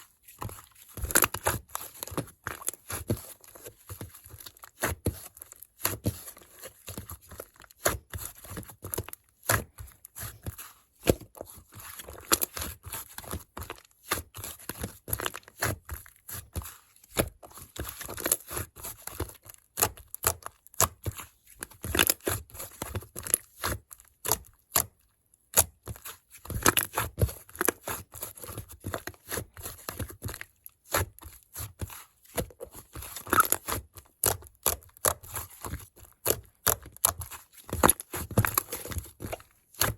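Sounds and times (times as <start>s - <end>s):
slime squished by hand: 27.8s - 39.9s.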